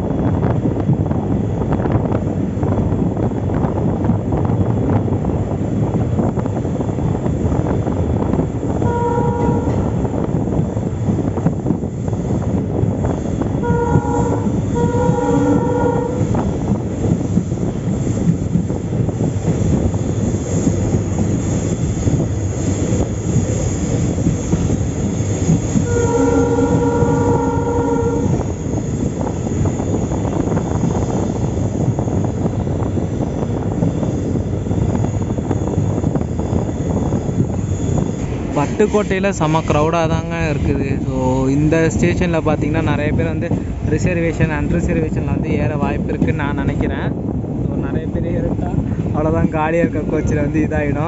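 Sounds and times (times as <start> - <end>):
train rumble and wheel clatter: 0.0 - 51.0
train horn blasts: 8.8 - 10.1, 13.6 - 16.6, 25.8 - 28.6.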